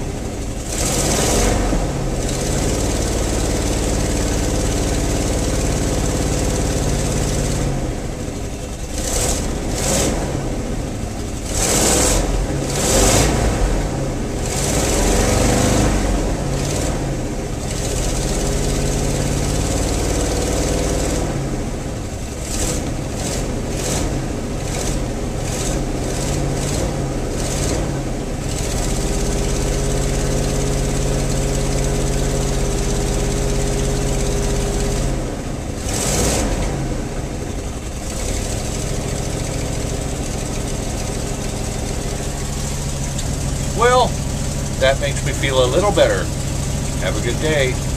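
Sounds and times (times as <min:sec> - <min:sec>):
truck engine idling: 0:00.0 - 0:11.6, 0:37.0 - 0:47.9.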